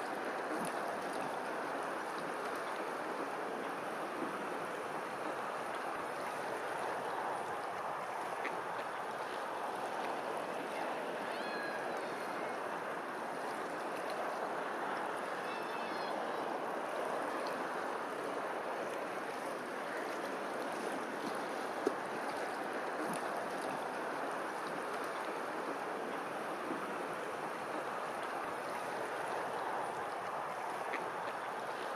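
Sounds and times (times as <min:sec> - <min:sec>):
flowing water: 0:00.0 - 0:31.9
faint short high calls: 0:11.2 - 0:12.6.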